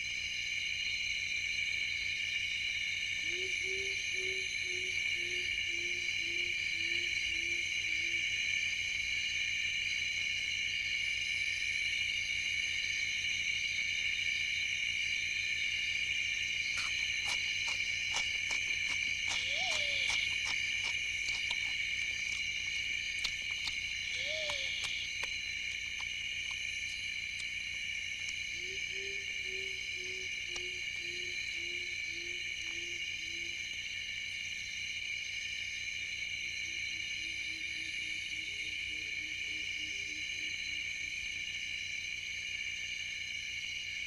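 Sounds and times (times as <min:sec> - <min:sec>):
insects trilling: 0:00.0 - 0:44.0
low repeated animal call: 0:03.2 - 0:08.3, 0:16.7 - 0:26.0, 0:28.5 - 0:33.6
short chirping calls: 0:16.7 - 0:22.5, 0:23.2 - 0:25.3
scattered clicks: 0:16.7 - 0:26.6.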